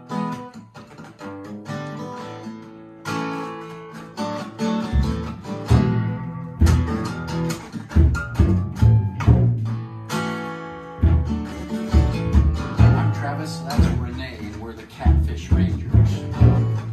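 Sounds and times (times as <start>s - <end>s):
acoustic guitar plucking and strumming: 0.0s - 16.9s
deep bass notes: 4.9s - 10.0s, 10.8s - 16.9s.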